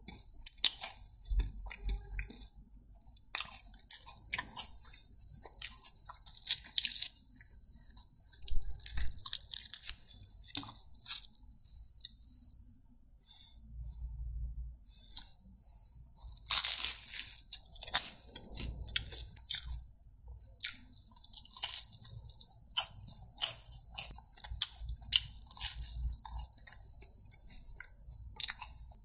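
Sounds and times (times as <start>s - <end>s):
crunchy food chewing: 0.0s - 12.4s, 16.1s - 19.9s, 20.6s - 29.0s.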